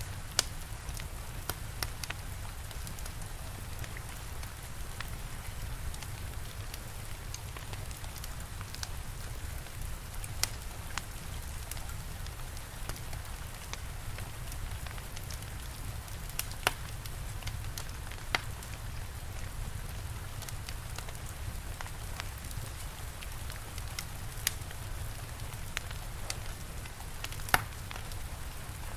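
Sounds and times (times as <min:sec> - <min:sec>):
fire crackling: 0:00.0 - 0:28.9
steady rain hiss: 0:00.0 - 0:28.9
sharp pops: 0:27.5 - 0:27.8.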